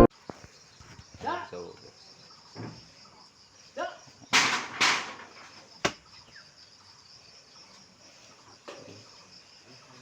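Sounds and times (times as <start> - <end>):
insects chirring: 0.0 - 10.0
sharp crack: 4.3 - 6.0.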